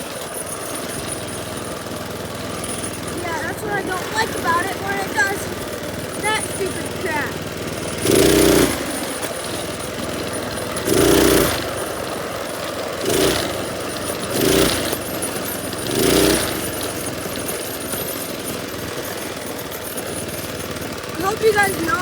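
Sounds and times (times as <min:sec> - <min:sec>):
minibike engine blipping throttle: 0:00.0 - 0:22.0.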